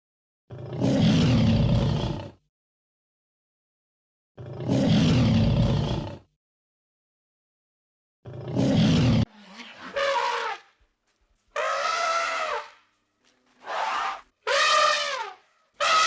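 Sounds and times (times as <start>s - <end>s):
large animal roaring: 0.5s - 2.4s, 4.4s - 6.3s, 8.3s - 9.3s.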